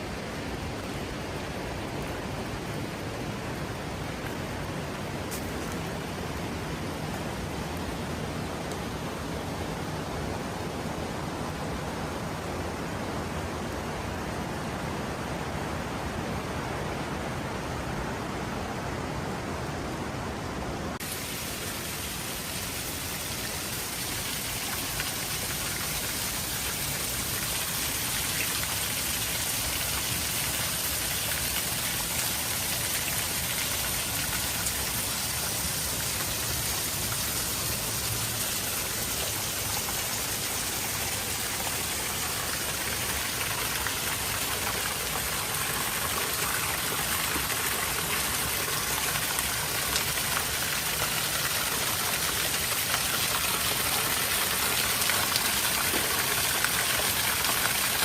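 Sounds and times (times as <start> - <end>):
scattered raindrops: 0.0 - 9.5
steady rain hissing: 0.0 - 58.0.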